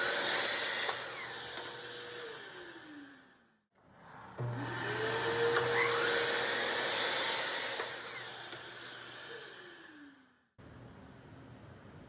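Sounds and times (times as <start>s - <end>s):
power tool motor whine: 0.0s - 3.3s, 4.4s - 10.2s.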